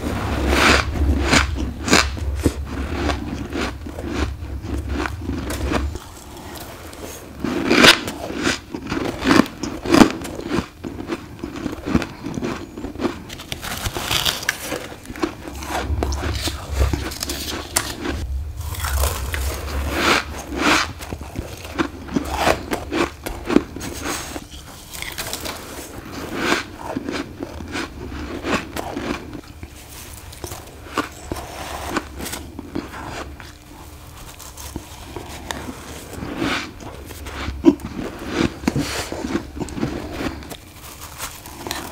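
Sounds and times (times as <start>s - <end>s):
crunching frost ice: 0.2s - 41.9s.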